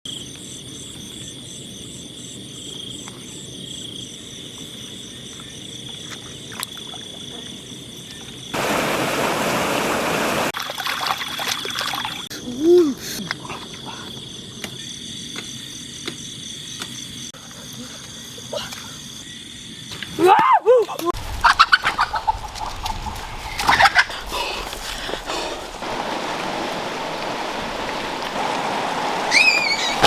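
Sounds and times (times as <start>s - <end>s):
night insects chirping: 0.1s - 20.2s, 21.2s - 30.0s
rushing splashing noise: 8.6s - 10.6s, 21.2s - 30.0s
rising-then-falling call: 23.6s - 30.0s.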